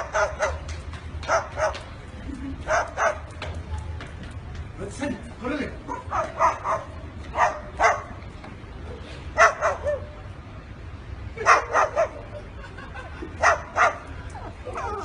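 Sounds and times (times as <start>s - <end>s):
dog barking: 0.0s - 1.8s, 2.7s - 3.3s, 5.9s - 8.2s, 9.4s - 10.2s, 11.4s - 12.2s, 13.4s - 14.0s, 14.7s - 15.0s.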